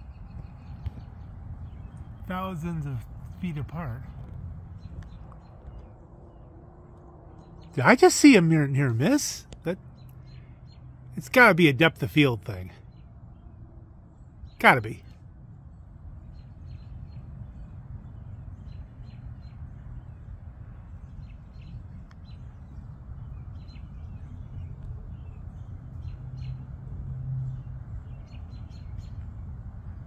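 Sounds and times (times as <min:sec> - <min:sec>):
steady low rumble: 0:00.0 - 0:09.6
small birds chirping: 0:00.0 - 0:30.0.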